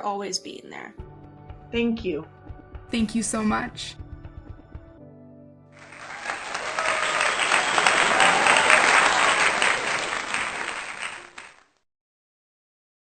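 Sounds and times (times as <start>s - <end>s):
people clapping: 5.8s - 11.8s.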